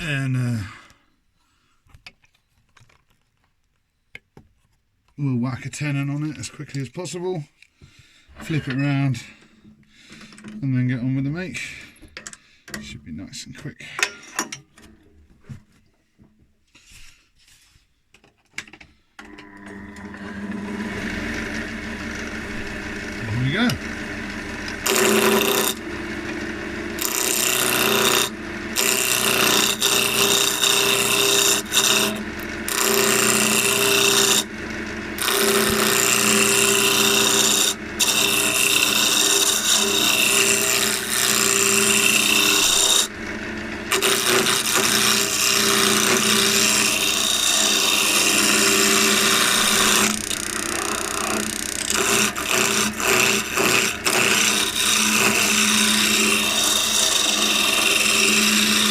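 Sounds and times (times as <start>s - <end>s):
turning tool scraping wood: 5.9s - 13.0s, 19.2s - 58.9s
lathe motor hum: 19.2s - 58.9s.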